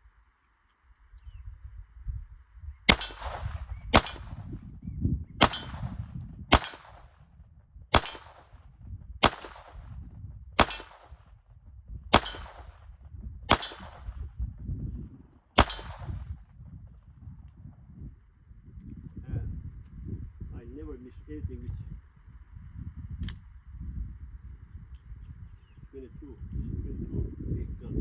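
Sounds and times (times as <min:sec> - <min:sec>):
low rumble: 0:02.6 - 0:24.6
gunshots: 0:02.9 - 0:04.5, 0:05.4 - 0:07.2, 0:07.9 - 0:08.6, 0:09.2 - 0:09.9, 0:10.6 - 0:11.3, 0:12.1 - 0:12.9, 0:13.5 - 0:14.2, 0:15.6 - 0:16.3.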